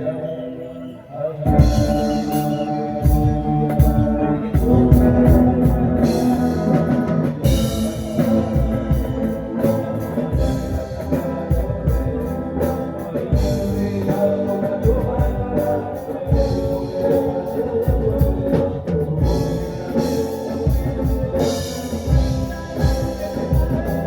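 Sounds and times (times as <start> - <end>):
guitar: 0.0 - 24.0
person singing: 0.0 - 24.0
drum kit: 1.5 - 24.0.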